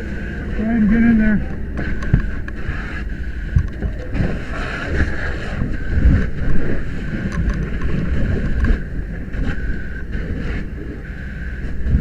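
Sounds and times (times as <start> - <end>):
low uneven rumble: 0.0 - 12.0.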